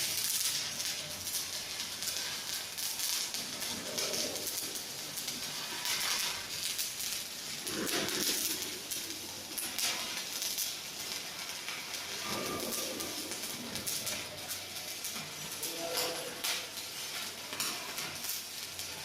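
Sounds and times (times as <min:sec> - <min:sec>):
arc welding crackling and hissing: 0:00.0 - 0:19.0.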